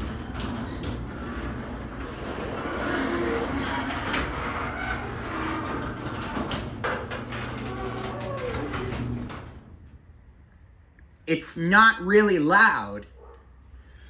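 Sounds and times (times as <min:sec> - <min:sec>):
door rollers clicking on tracks: 0:00.0 - 0:10.0
garage door opener running: 0:00.0 - 0:10.0.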